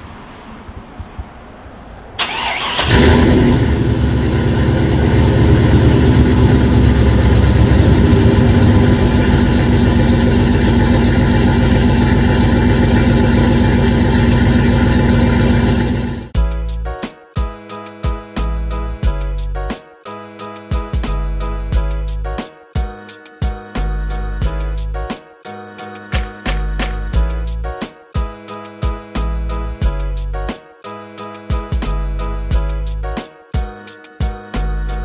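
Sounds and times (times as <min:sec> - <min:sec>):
truck engine cranking: 0:02.2 - 0:16.3
truck engine running: 0:02.2 - 0:16.4.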